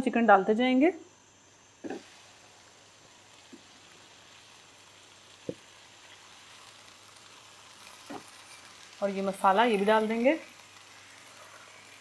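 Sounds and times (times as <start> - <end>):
chicken sizzling in a pot: 0.1 - 12.0.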